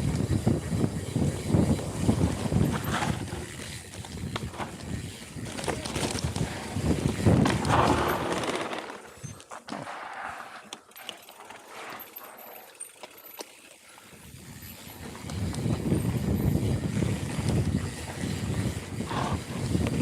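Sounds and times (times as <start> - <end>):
bike tyres on dirt: 0.0 - 20.0
bike rattling knocks: 1.5 - 9.2.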